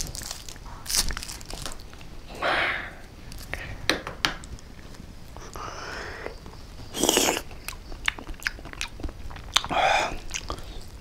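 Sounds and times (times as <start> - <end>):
person chewing wet food: 5.3 - 11.0
wet mouth clicks: 7.0 - 10.8.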